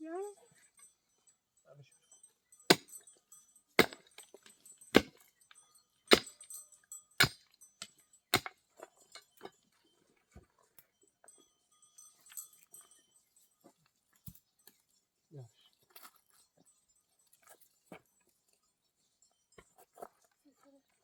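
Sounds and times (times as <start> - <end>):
sharp knocks: 5.0 - 5.2.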